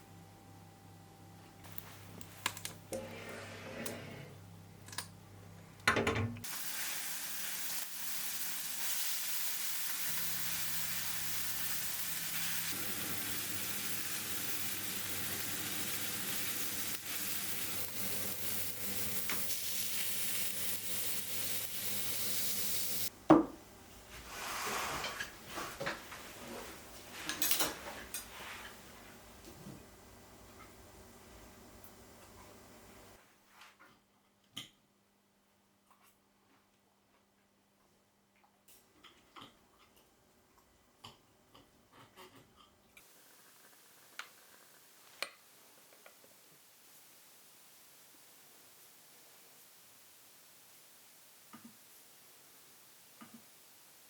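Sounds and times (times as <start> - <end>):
food sizzling in a frying pan: 6.4 - 23.1, 43.0 - 54.0.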